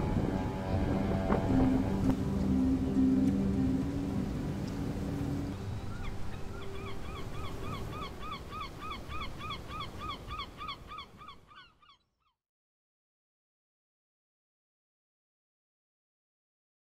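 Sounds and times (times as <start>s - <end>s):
low rumble: 0.0s - 5.9s.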